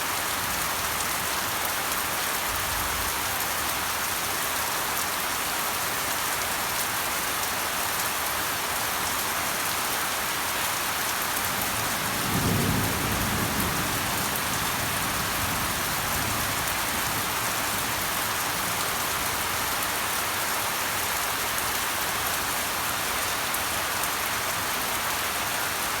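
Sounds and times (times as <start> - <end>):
rain pattering: 5.9 - 26.0.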